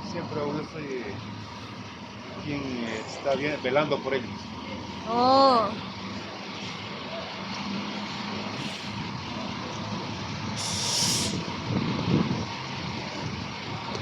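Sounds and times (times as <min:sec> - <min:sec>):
fire truck engine running: 0:00.0 - 0:14.0
air brakes hissing: 0:10.6 - 0:11.5.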